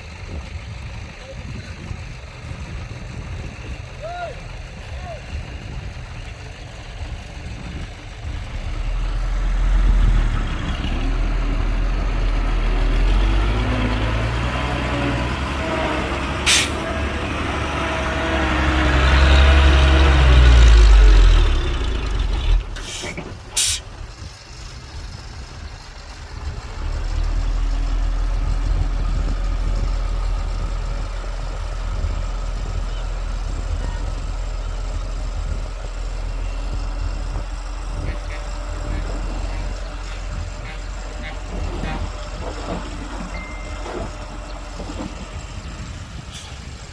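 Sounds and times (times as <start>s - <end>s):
diesel truck engine running: 0.0s - 46.9s
air brake hiss: 16.5s - 16.8s, 22.8s - 23.9s.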